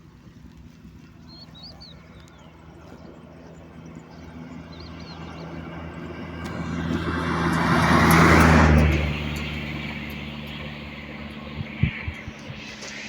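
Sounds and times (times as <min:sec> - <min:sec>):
low engine hum: 0:00.0 - 0:13.0
vehicle passing by: 0:02.6 - 0:13.0.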